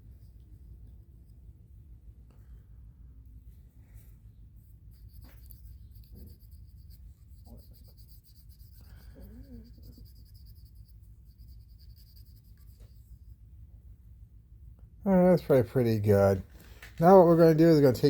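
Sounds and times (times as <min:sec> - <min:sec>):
low steady hum: 0:00.0 - 0:18.0
fast scratching and scrubbing: 0:04.9 - 0:13.2.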